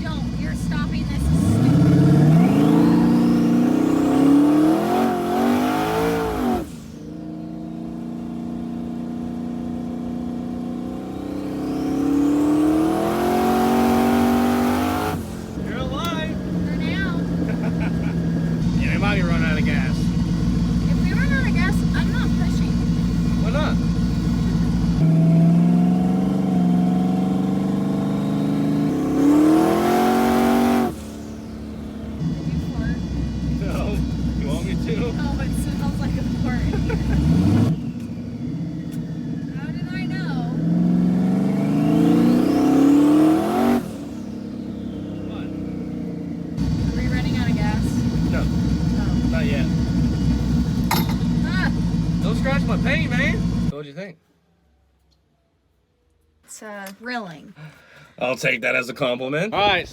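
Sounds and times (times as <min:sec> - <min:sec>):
car engine accelerating hard: 0:00.0 - 0:53.8
turbo whine: 0:28.4 - 0:40.5, 0:41.3 - 0:53.7.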